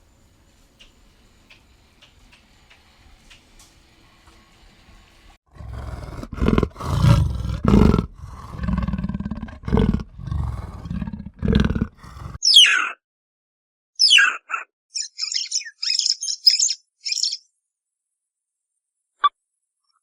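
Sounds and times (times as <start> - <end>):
faint ticks: 0.8 - 3.7
animal growling: 5.5 - 12.4.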